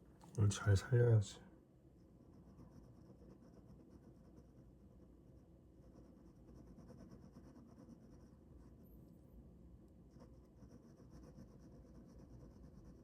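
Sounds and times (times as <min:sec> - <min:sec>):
pen scratching on paper: 0:02.0 - 0:08.8, 0:10.0 - 0:13.0.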